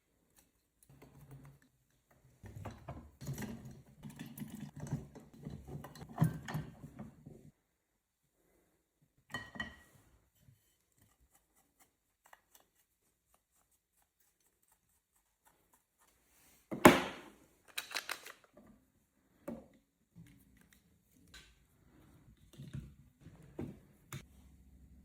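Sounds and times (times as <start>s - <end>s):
small plastic parts clicking: 17.6s - 18.6s.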